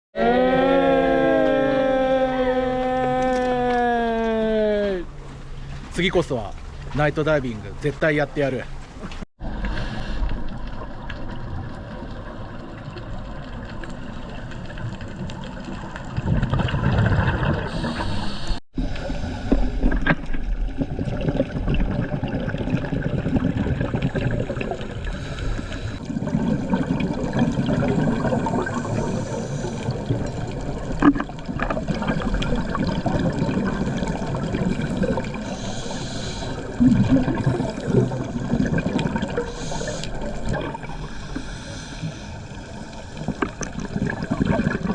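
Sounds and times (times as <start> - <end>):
underwater bubbles gurgling: 9.1 - 44.9.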